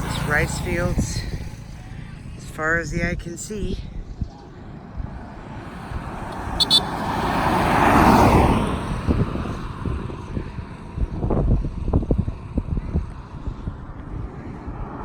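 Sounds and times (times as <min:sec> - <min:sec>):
vehicle passing: 0:00.0 - 0:02.4, 0:04.5 - 0:11.3
car road noise from inside: 0:04.9 - 0:11.4.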